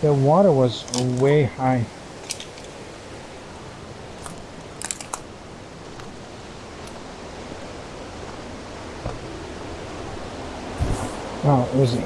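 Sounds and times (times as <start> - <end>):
footsteps crunching on bank: 4.1 - 9.5.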